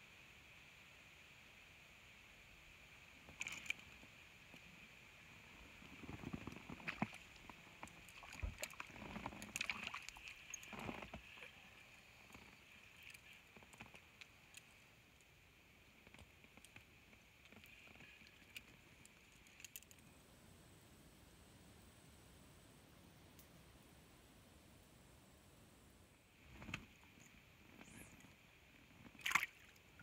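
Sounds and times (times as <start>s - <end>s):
water splashes: 6.6s - 13.5s, 29.1s - 30.0s.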